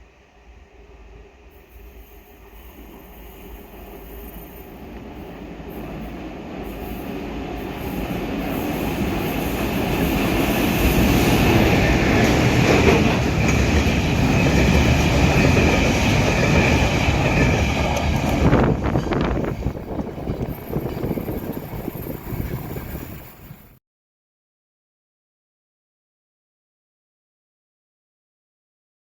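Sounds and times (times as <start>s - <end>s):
train passing with heavy rumble: 0.0s - 23.8s
wheels squealing: 8.5s - 23.8s.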